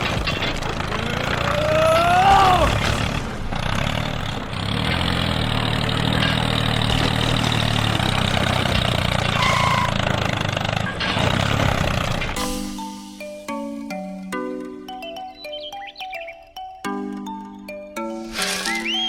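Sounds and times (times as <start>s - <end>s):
small engine running: 0.0s - 12.7s.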